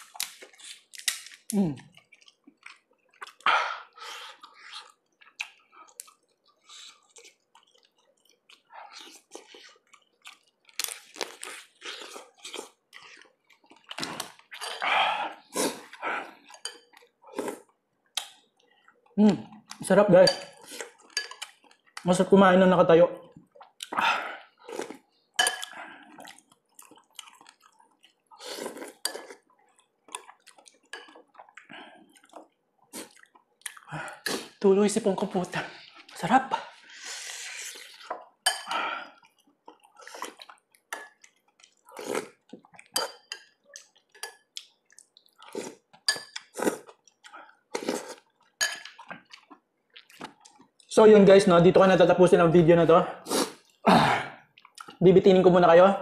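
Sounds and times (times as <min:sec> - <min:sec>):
person chewing food: 0:00.0 - 0:22.1, 0:23.3 - 0:34.6, 0:35.2 - 0:50.9, 0:53.3 - 0:55.0
wet mouth smacks and clicks: 0:18.2 - 0:18.4.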